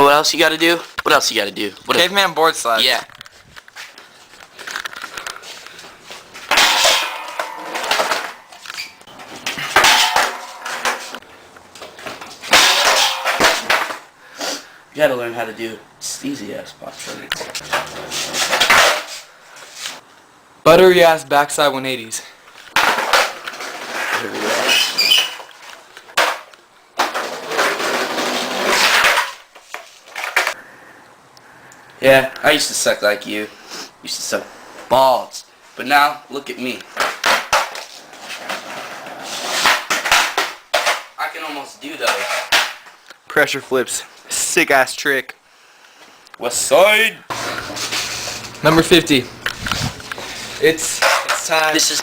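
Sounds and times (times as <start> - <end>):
skateboard clattering and scraping: 6.4 - 11.2, 11.8 - 14.1, 17.4 - 19.8, 22.7 - 30.6, 36.9 - 41.2, 42.0 - 42.9, 50.9 - 52.0
skateboard clacking: 6.5 - 8.6, 9.4 - 11.2, 39.5 - 41.1.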